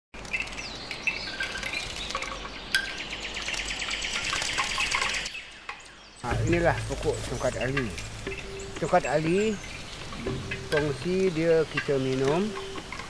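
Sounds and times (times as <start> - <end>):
forest birds chirping: 0.2 - 13.0.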